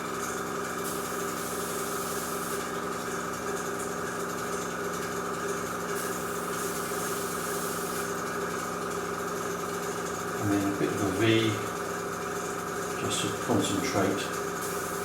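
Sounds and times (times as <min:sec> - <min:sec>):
compressor humming: 0:00.0 - 0:15.0
airbrush hissing: 0:06.0 - 0:08.1, 0:14.6 - 0:15.0.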